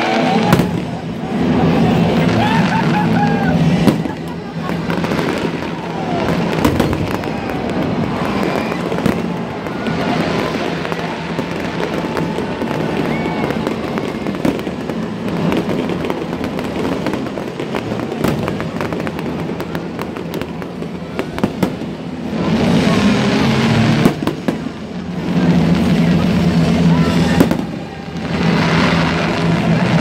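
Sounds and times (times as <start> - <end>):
fireworks bursting: 0.0 - 30.0
sharp bangs and crackles: 0.0 - 30.0.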